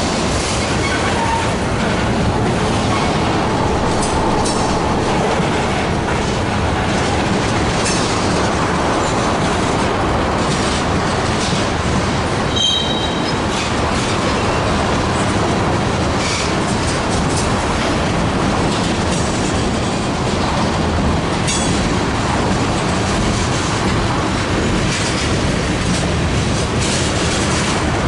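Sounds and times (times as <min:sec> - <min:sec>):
freight train rumbling past: 0:00.0 - 0:28.0
wheels clattering over rail joints: 0:00.0 - 0:28.0
wheel squeal: 0:12.5 - 0:13.4.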